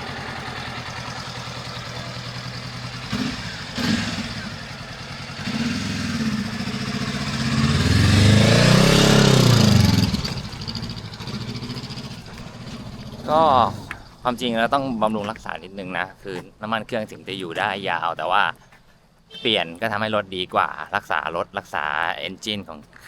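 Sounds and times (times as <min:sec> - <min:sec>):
motorcycle engine idling and pulling away: 0:00.0 - 0:15.4.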